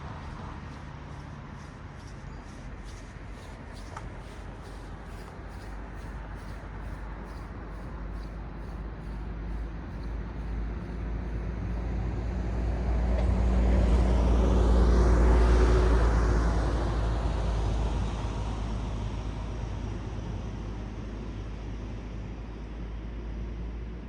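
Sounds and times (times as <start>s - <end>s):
low traffic rumble: 0.0s - 24.0s
car passing by: 10.6s - 19.6s.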